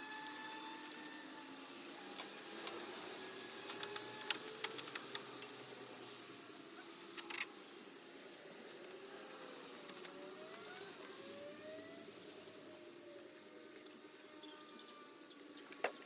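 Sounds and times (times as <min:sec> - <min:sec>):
sharp clicks and light taps: 0:03.5 - 0:05.6.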